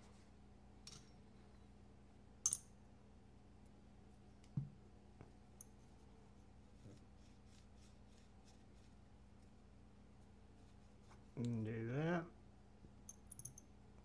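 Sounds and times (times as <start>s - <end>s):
small tool parts clicking and tapping: 2.4s - 2.6s, 13.1s - 13.7s.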